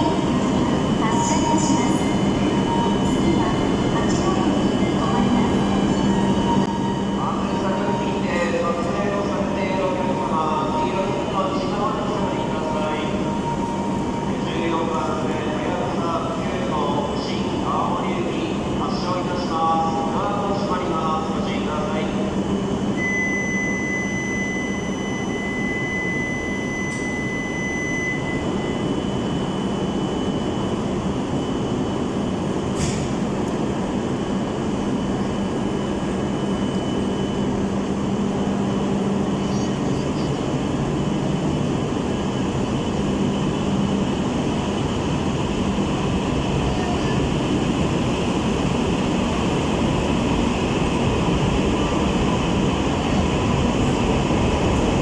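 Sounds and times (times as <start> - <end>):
train rumble and rush: 0.0 - 55.0
faint whine tones: 21.7 - 32.2.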